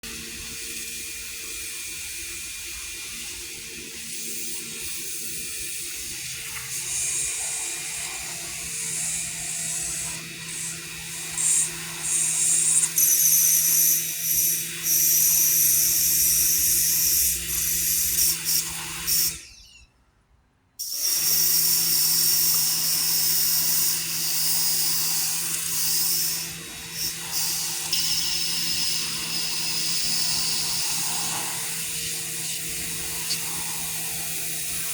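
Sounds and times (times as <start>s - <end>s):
water jet hissing: 23.2s - 34.9s
pressure washer hum: 23.5s - 34.9s.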